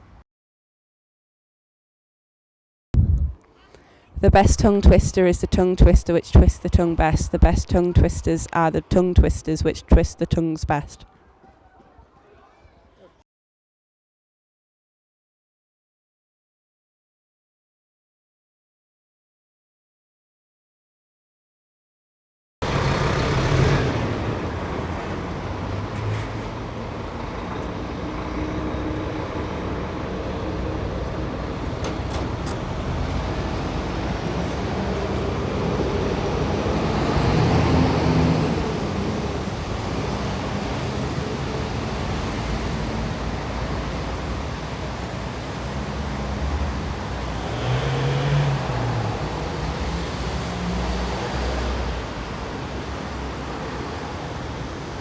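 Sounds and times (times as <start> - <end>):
loud vehicle passing: 22.6 - 52.7
road traffic rumble: 22.6 - 55.0.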